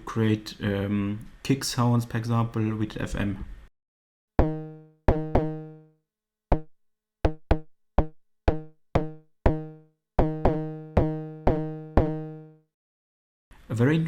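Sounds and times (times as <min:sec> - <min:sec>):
pitched electronic drum hits: 0:04.4 - 0:05.9, 0:06.5 - 0:12.6.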